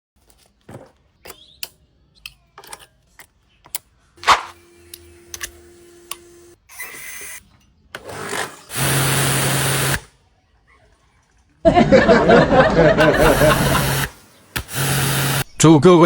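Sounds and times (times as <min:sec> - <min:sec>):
pressure washer motor hum: 0:04.2 - 0:10.1, 0:11.6 - 0:15.5
pressure washer spraying: 0:08.6 - 0:10.0, 0:13.0 - 0:15.5.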